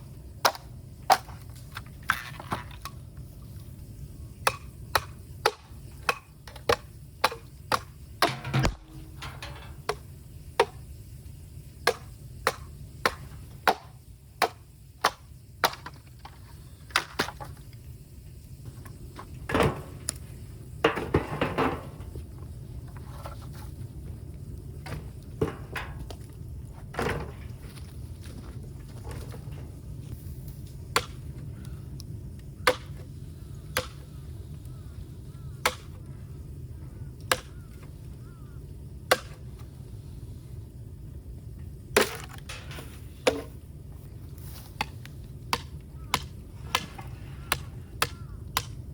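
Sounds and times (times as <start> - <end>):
bamboo being chopped: 4.4 - 8.9, 37.3 - 37.6, 39.1 - 39.4, 42.0 - 42.4, 44.7 - 48.8.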